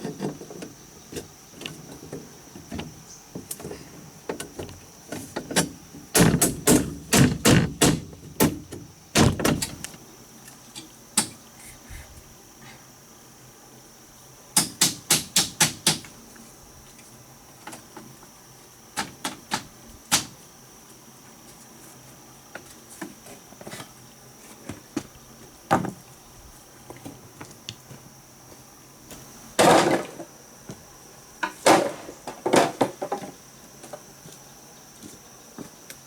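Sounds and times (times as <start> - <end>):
high insect drone: 0.0 - 36.0
wood knocks and thuds: 1.6 - 9.9, 25.7 - 26.0, 29.6 - 30.3, 31.4 - 33.4.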